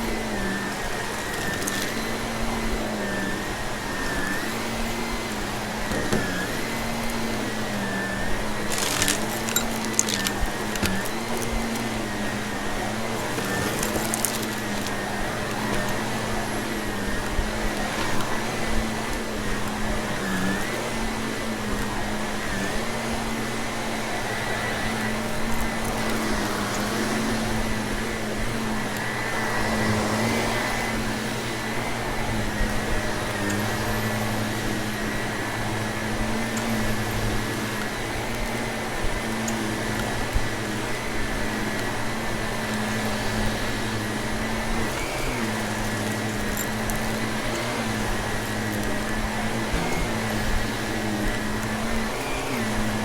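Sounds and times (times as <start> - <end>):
vacuum cleaner running: 0.0 - 53.0
debris clicking in vacuum: 0.6 - 2.3, 8.5 - 12.3, 12.9 - 20.7.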